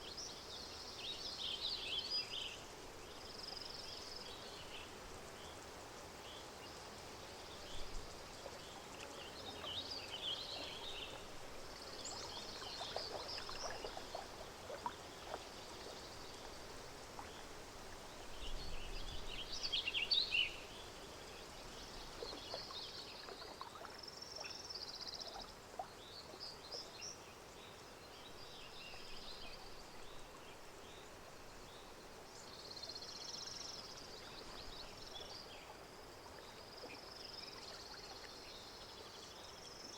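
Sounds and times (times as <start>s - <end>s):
water lapping and trickling: 0.2s - 39.8s
small birds chirping: 6.2s - 17.6s, 18.2s - 39.9s.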